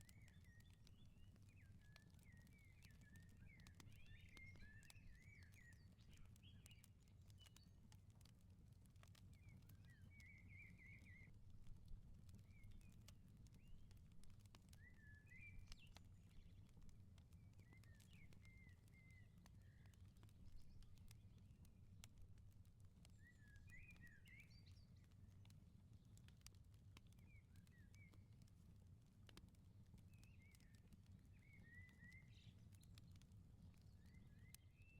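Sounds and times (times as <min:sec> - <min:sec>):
songbirds twittering: 0:00.0 - 0:07.8, 0:12.3 - 0:21.3, 0:23.0 - 0:25.1, 0:30.0 - 0:34.9
wood fire crackling: 0:00.0 - 0:34.8.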